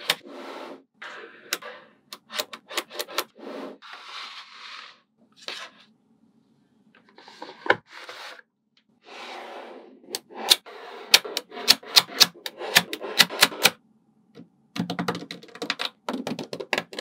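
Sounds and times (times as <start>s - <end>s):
balls rubbing and scraping: 0.0s - 6.0s, 7.0s - 13.7s.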